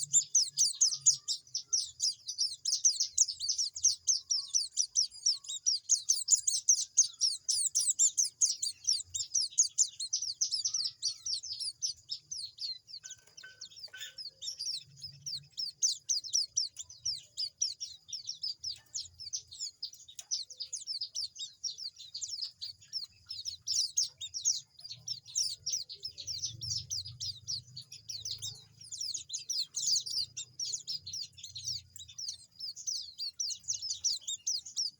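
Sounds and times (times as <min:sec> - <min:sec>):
young birds chirping: 0:00.0 - 0:34.9.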